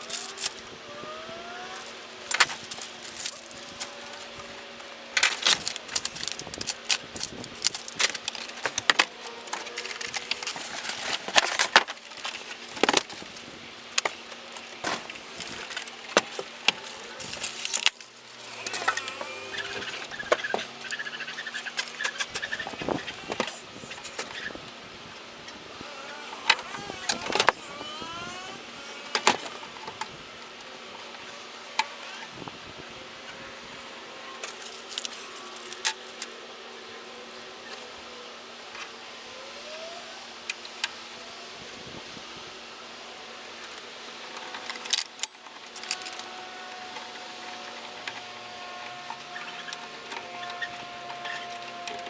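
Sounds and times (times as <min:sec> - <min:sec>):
hard parts clicking and clinking: 0:00.0 - 0:24.6, 0:25.5 - 0:30.1, 0:34.4 - 0:36.4, 0:43.6 - 0:52.0
steady hiss and low hum: 0:00.0 - 0:52.0
wavering squeak: 0:18.4 - 0:24.6, 0:25.8 - 0:29.8, 0:46.3 - 0:52.0.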